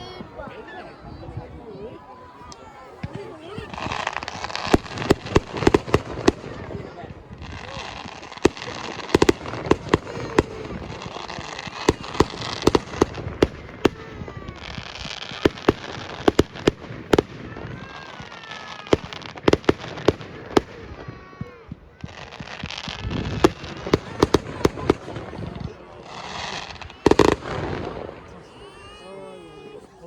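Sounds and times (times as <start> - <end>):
fireworks bangs: 0.0 - 29.7
fireworks crackling hiss: 0.0 - 29.8.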